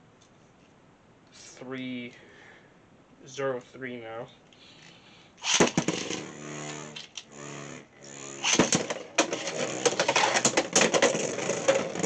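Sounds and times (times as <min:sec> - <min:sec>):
spinning tops clattering: 0:05.4 - 0:07.2, 0:08.4 - 0:12.0
spinning tops humming: 0:05.4 - 0:12.0.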